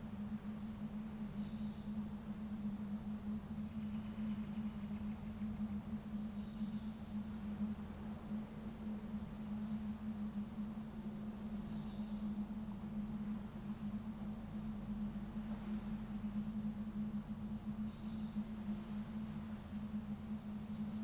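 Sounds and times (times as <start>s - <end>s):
steady low hum: 0.0s - 21.0s
bird chirps and trills: 8.6s - 13.5s, 17.4s - 21.0s.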